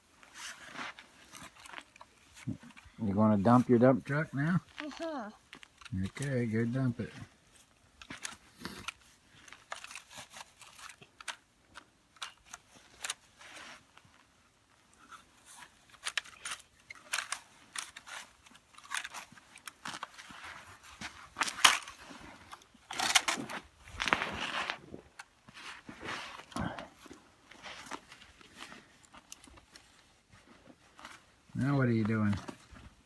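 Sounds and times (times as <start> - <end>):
snow crunching: 23.5 - 28.9.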